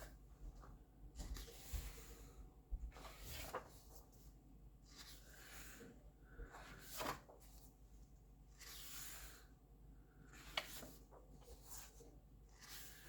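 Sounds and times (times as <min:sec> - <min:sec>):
paper pages turning: 0:02.9 - 0:05.8, 0:06.5 - 0:07.7, 0:08.5 - 0:09.4, 0:10.3 - 0:13.0.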